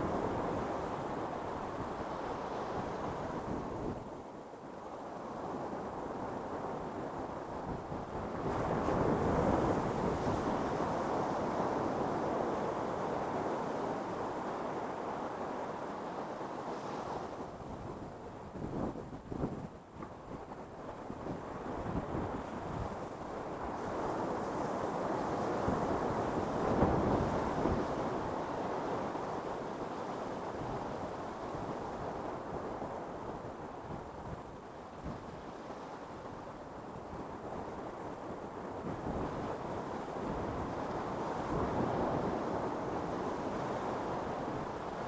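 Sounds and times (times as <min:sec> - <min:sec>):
wind on microphone: 0:00.0 - 0:45.0.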